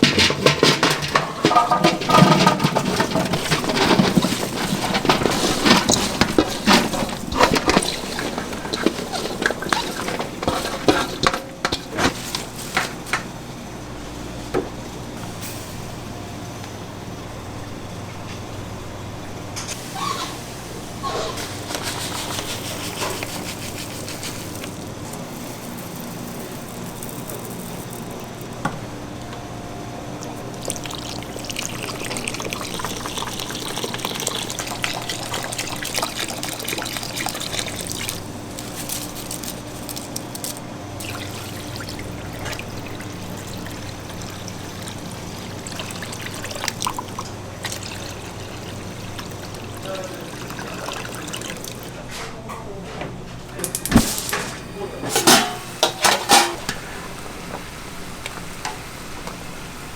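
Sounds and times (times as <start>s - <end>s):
mechanical hum: 0.0s - 59.9s
liquid pouring and trickling: 1.5s - 11.3s, 30.2s - 52.0s.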